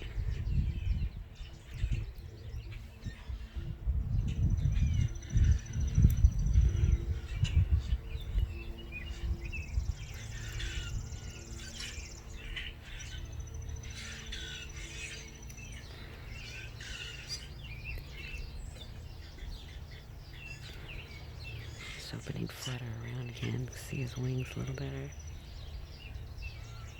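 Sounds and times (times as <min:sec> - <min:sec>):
faint low hum: 0:00.0 - 0:26.9
low rumble on microphone: 0:00.0 - 0:26.9
songbirds chirping and twittering: 0:00.0 - 0:26.9.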